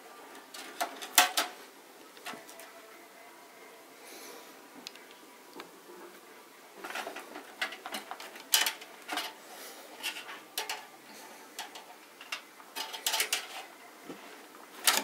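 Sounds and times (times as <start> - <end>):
computer parts clicking and clattering: 0.5 - 1.6, 6.8 - 9.4, 10.0 - 10.9, 11.6 - 13.7.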